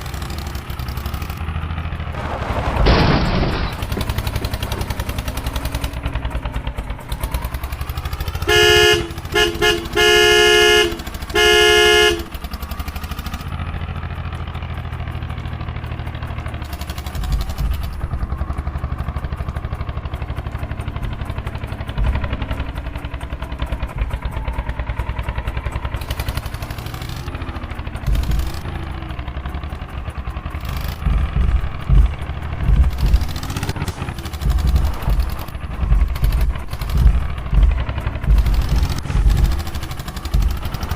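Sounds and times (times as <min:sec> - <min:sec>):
tractor diesel engine chugging: 0:00.0 - 0:40.9
horn honking: 0:03.6 - 0:13.7, 0:21.0 - 0:40.9.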